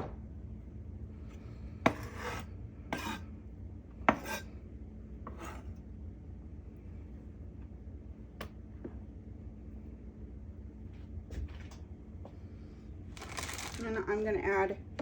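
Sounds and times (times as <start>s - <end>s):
low steady hum: 0.0s - 15.0s
rasping scrapes: 1.9s - 3.2s.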